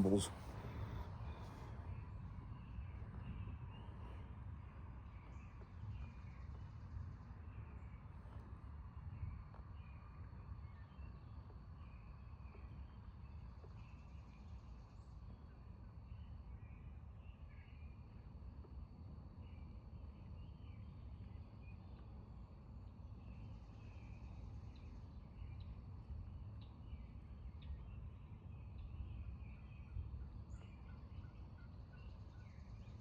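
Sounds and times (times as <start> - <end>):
birds chirping: 0.0 - 0.9
low background rumble: 0.0 - 6.9.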